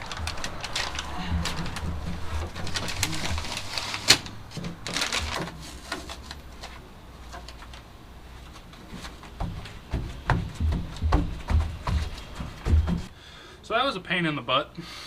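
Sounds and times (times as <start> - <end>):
sheet material rustling and scraping: 0.0 - 7.7.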